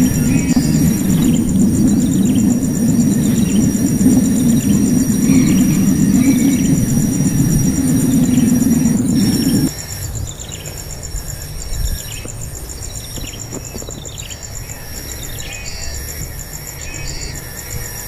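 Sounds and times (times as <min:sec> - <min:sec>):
descending bird chirps: 0:00.0 - 0:09.7
loud low rumbling: 0:00.0 - 0:09.7
high insect drone: 0:00.0 - 0:18.0.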